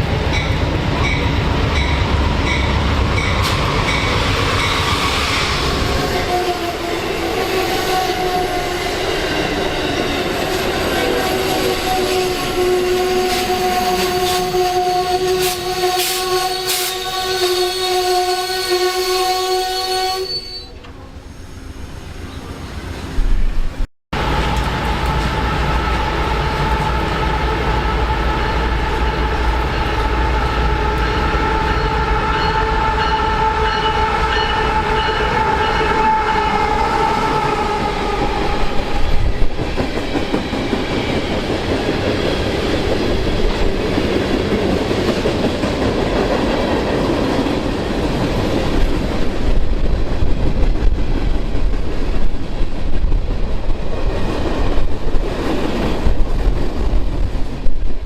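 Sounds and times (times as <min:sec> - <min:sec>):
train horn chord: 0:11.0 - 0:20.4, 0:24.2 - 0:38.7
train wheels clattering past: 0:24.2 - 0:58.0.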